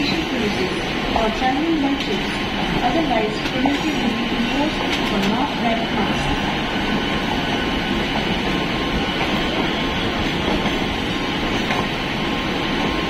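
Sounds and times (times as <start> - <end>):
train wheels rumbling and rattling: 0.0 - 13.0.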